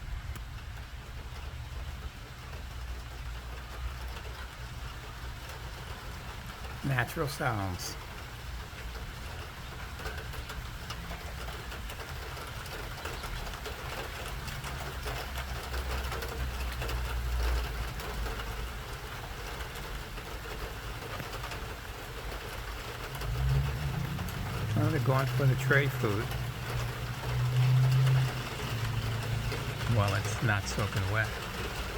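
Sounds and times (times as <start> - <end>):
rain pattering: 0.0 - 31.9
rainwater running in gutters: 0.0 - 31.9.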